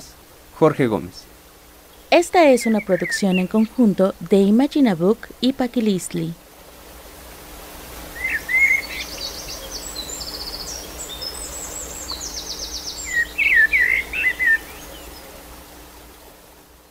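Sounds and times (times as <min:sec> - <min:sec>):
bird chirps: 0:01.9 - 0:03.8, 0:08.2 - 0:15.4
bird trills and whistles: 0:02.6 - 0:03.6, 0:08.2 - 0:15.2.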